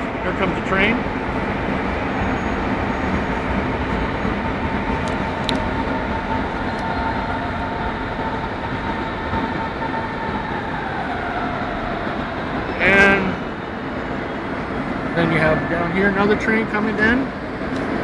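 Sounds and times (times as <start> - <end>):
train rumbling: 0.0 - 18.0
thin steady whine: 12.6 - 17.9.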